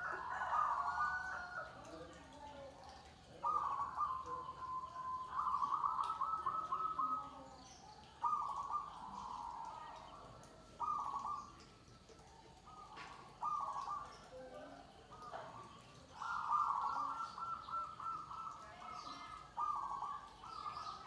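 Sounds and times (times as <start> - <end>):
dove cooing: 0.0 - 2.6, 3.2 - 11.7, 12.5 - 21.0.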